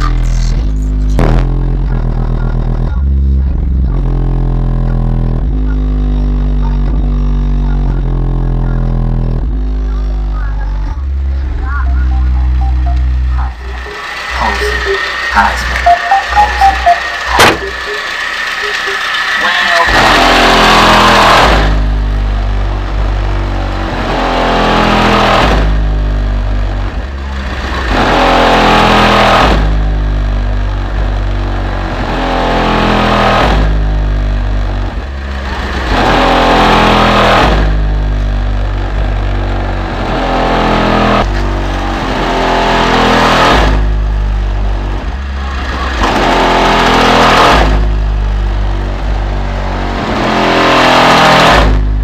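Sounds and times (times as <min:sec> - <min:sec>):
music with heavy bass line: 0:00.0 - 0:52.0
rising sweeps: 0:11.4 - 0:21.6.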